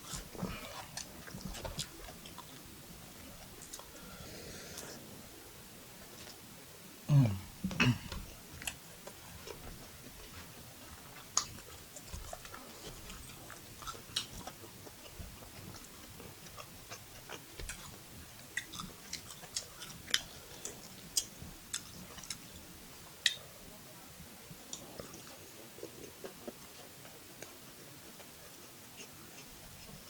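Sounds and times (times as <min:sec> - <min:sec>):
person chewing food: 0:00.0 - 0:05.0, 0:07.6 - 0:23.4.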